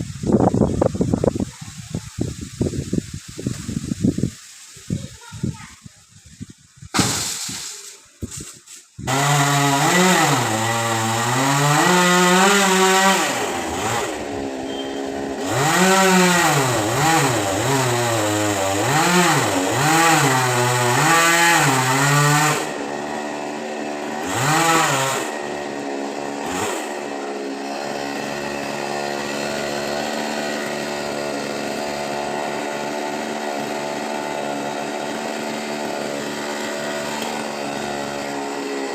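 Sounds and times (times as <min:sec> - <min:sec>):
chainsaw engine revving: 0:09.0 - 0:38.9.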